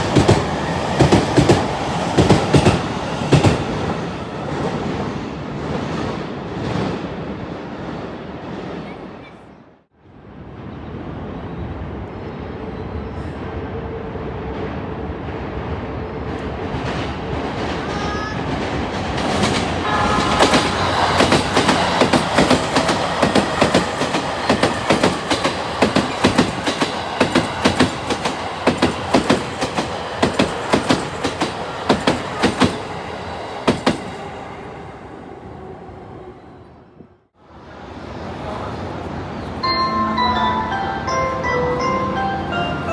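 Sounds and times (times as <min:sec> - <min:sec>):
train rumble passing: 0:00.0 - 0:42.9
wheel clacks over rail joints: 0:19.2 - 0:32.9
train horn: 0:19.4 - 0:23.0.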